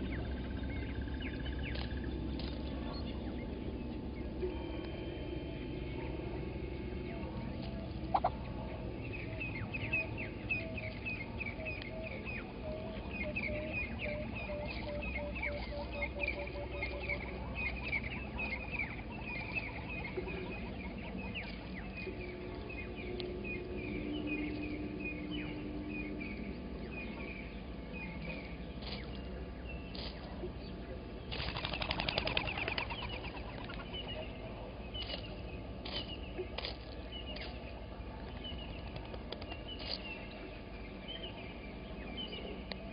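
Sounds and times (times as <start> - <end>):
bird calling lower notes: 0.0 - 29.6
wings fluttering: 31.3 - 34.2, 38.2 - 40.0.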